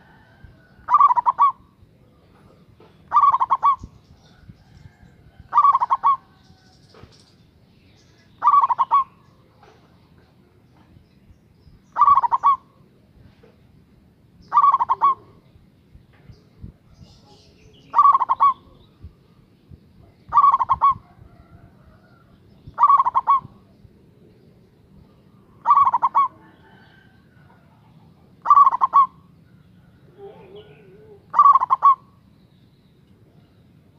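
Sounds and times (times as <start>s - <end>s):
dove cooing: 0.0s - 6.6s, 8.4s - 10.6s, 11.9s - 12.9s, 14.5s - 15.5s, 17.8s - 19.3s, 20.3s - 32.2s.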